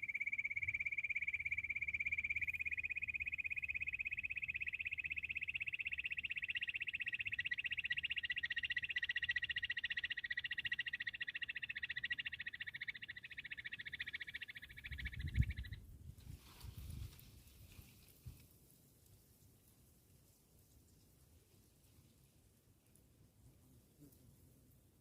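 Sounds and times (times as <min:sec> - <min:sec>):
quail trilling: 0:00.0 - 0:15.8.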